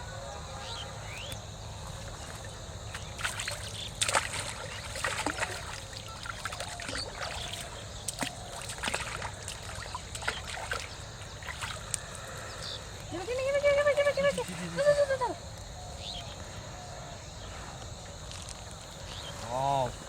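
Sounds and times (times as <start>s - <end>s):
water sloshing and trickling: 1.8s - 15.7s
small splashes: 1.9s - 15.4s.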